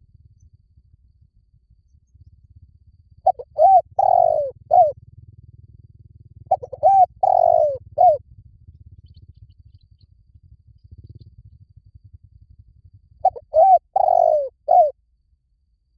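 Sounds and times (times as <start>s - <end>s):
faint low hum: 0.0s - 15.9s
dove cooing: 3.2s - 5.0s, 6.5s - 8.2s, 13.2s - 15.0s.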